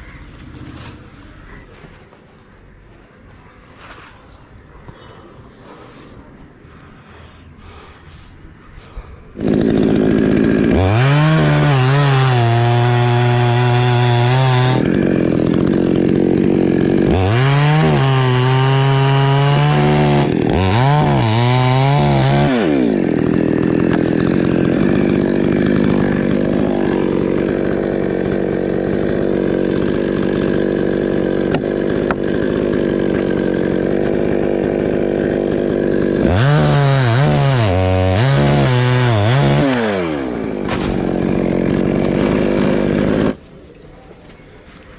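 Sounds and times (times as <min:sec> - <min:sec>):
chainsaw revving: 0:09.4 - 0:43.4.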